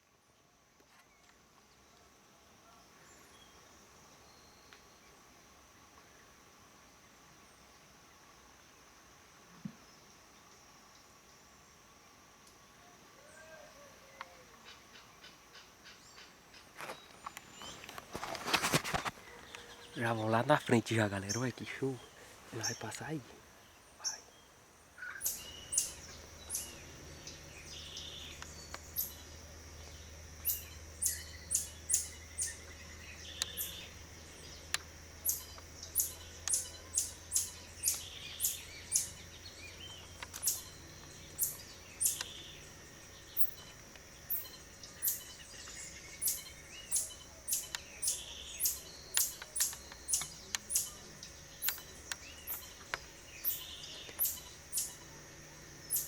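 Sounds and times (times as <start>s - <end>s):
sharp high bird chirps: 25.0s - 29.3s, 30.1s - 55.0s
steady high-pitched whine: 25.0s - 56.0s.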